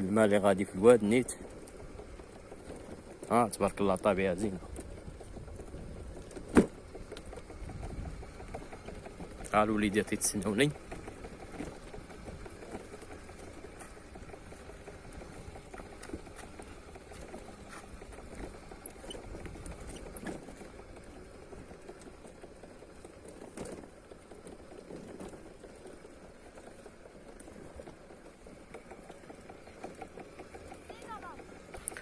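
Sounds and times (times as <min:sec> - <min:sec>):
wind rumble on microphone: 0:04.6 - 0:08.6
footsteps on dirt path: 0:13.1 - 0:20.6.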